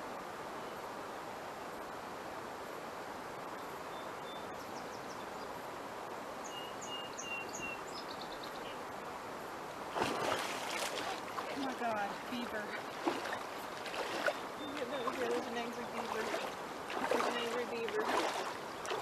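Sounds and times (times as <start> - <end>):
outdoor background hiss: 0.0 - 19.0
beaver tail slapping water: 9.8 - 19.0.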